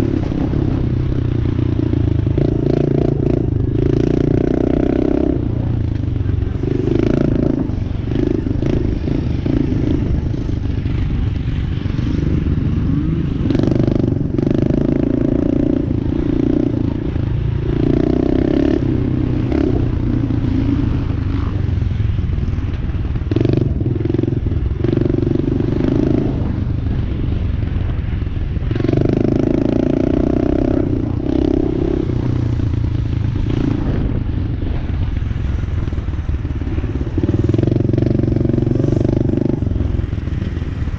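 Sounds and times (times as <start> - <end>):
dirt bike engine revving: 0.0 - 22.0, 35.6 - 40.9.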